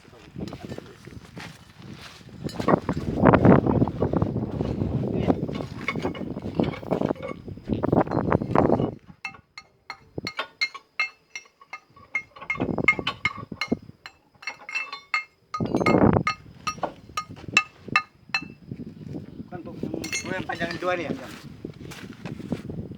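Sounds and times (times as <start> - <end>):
metal clinking taps: 5.5 - 7.4, 8.0 - 18.6, 20.0 - 20.9.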